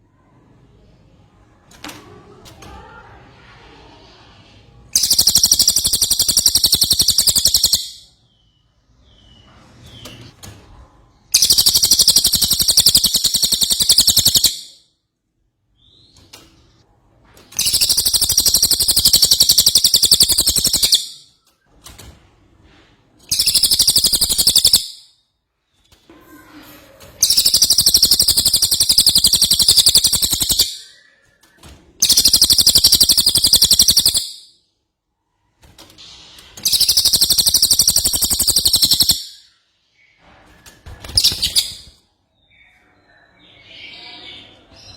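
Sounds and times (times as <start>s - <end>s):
songbird rapid trilling: 5.0s - 7.9s, 11.4s - 14.6s, 17.6s - 21.1s, 23.3s - 24.9s, 27.2s - 30.8s, 32.0s - 34.3s, 36.7s - 39.2s.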